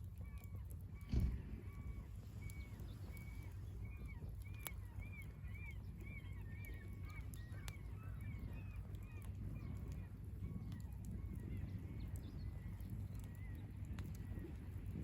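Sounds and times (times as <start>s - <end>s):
steady low rumble: 0.9s - 8.2s
dull thump: 1.1s - 1.6s.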